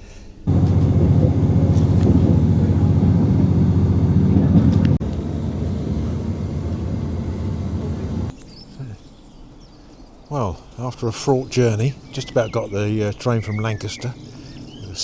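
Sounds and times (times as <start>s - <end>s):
train rumbling: 0.5s - 8.4s.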